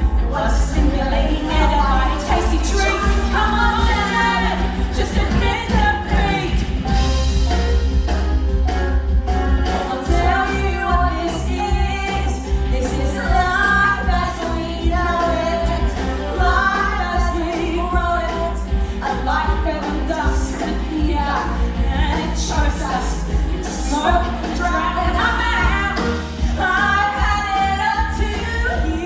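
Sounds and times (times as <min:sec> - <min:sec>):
women singing: 0:00.0 - 0:07.6, 0:09.4 - 0:29.0
instrumental accompaniment with bass: 0:00.0 - 0:29.0.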